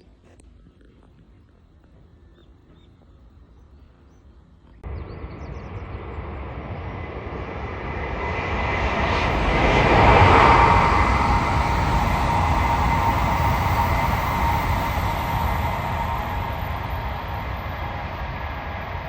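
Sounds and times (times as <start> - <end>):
high-speed train roar: 4.8 - 19.0.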